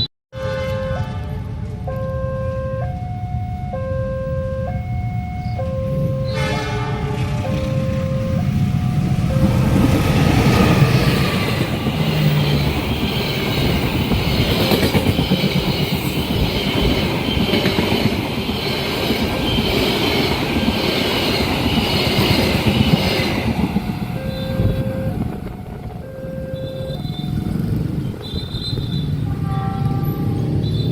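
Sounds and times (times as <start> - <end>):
train wheels clattering on rails: 9.2 - 26.0
high wheel squeal: 10.4 - 30.9.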